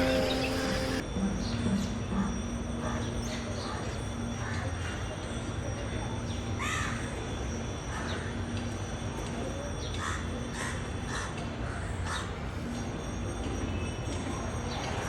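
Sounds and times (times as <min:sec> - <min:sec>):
birds calling: 0:00.0 - 0:01.0.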